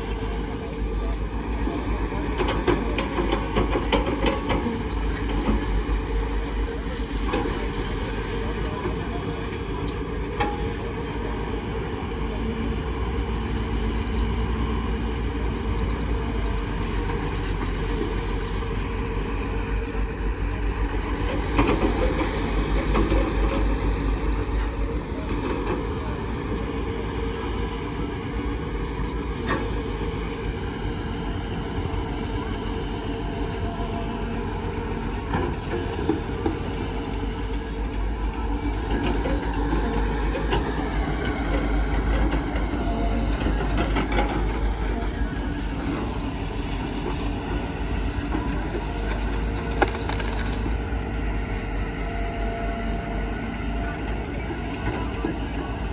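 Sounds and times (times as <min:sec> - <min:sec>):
heavy vehicle engine humming: 0:00.0 - 0:55.9.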